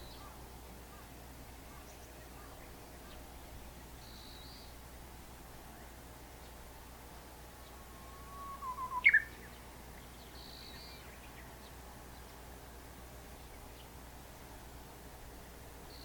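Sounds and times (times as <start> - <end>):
bush warbler singing: 0.0 - 0.4, 7.6 - 12.5.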